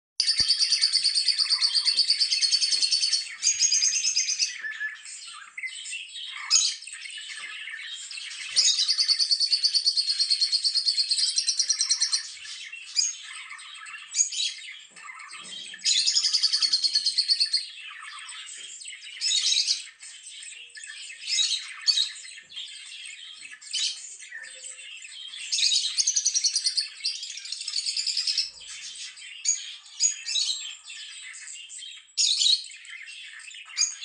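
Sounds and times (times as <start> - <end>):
soft bird chirps: 0.2 - 34.0.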